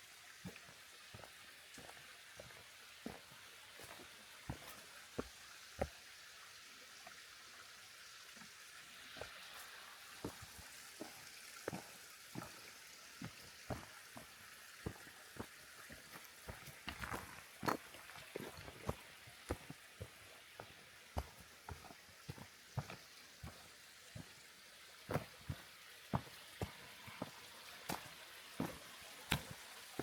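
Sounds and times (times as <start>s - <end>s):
flowing water hiss: 0.0s - 30.0s
footsteps on gravel: 13.7s - 19.8s.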